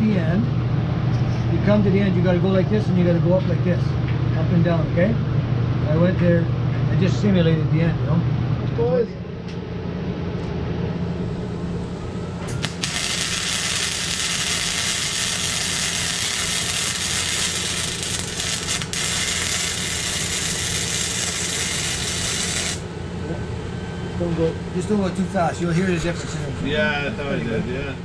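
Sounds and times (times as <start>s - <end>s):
steady low hum: 0.0s - 28.0s
welding arc crackling: 12.5s - 22.9s.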